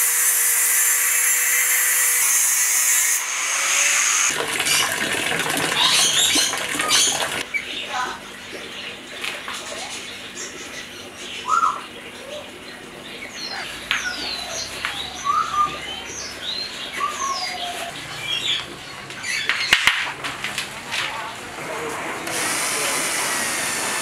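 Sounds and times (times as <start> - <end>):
small birds chirping and whistling: 9.6 - 19.9.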